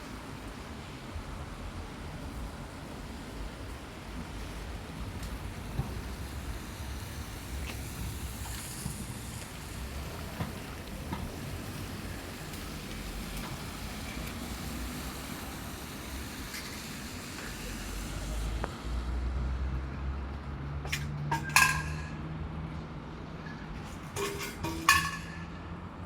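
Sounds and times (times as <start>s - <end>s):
rain hiss: 0.0s - 19.6s
traffic on wet road: 0.0s - 26.0s.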